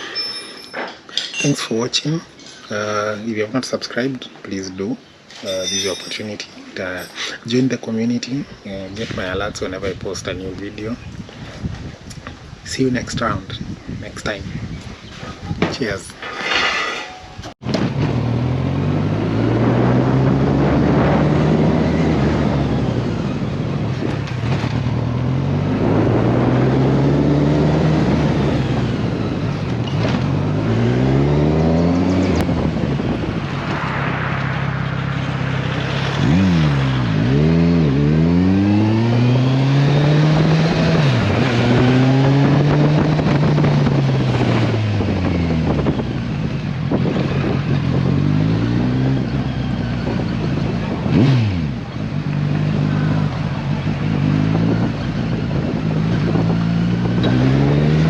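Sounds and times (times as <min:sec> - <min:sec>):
motorcycle engine accelerating: 0:17.6 - 0:58.0
motorcycle engine revving: 0:17.6 - 0:58.0.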